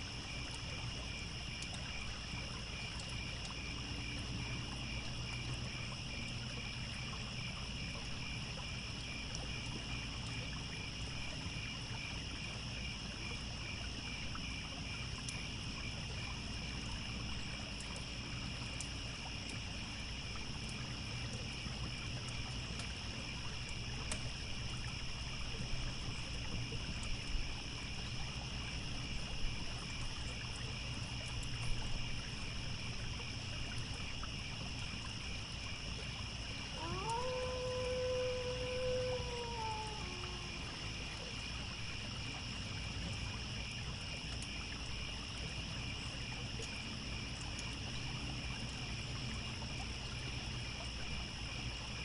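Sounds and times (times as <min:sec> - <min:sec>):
crickets chirping: 0:00.0 - 0:52.0
trickling stream: 0:00.0 - 0:52.0.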